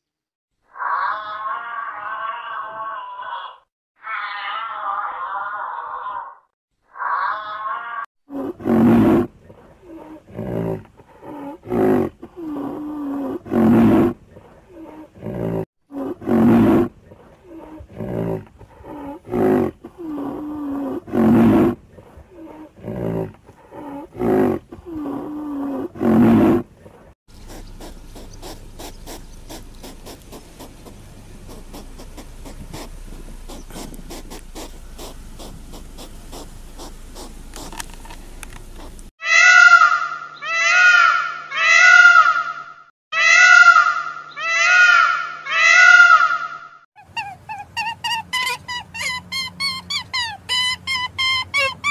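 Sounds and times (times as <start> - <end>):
large animal roaring: 7.0 - 26.7.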